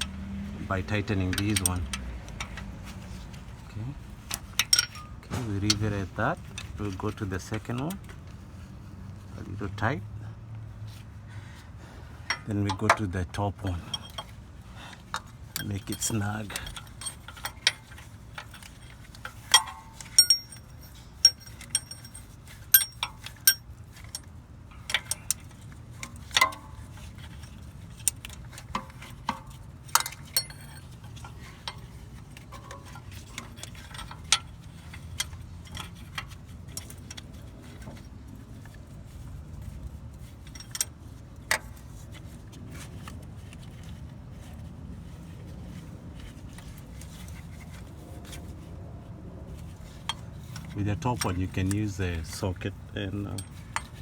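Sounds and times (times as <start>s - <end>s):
hand tools clicking on metal: 0.9s - 2.7s, 4.3s - 8.1s, 12.2s - 37.6s, 49.7s - 54.0s.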